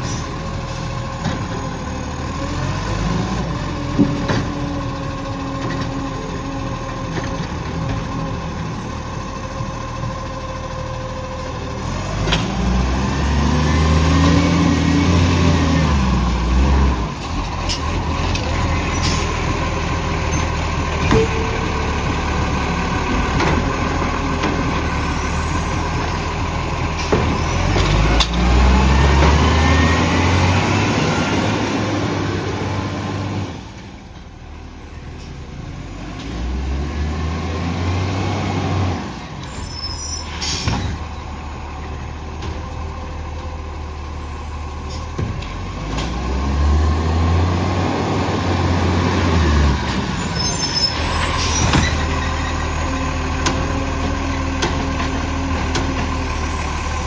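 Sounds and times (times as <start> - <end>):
diesel engine revving: 0.0 - 34.0, 34.6 - 57.0
diesel engine idling: 0.0 - 35.2, 47.8 - 57.0.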